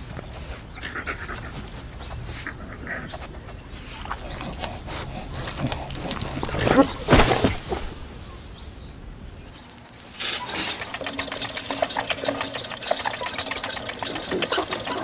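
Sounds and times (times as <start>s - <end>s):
rapid irregular clicks and ticks: 0.0s - 6.8s, 10.1s - 15.0s
faint steady hum: 0.0s - 15.0s.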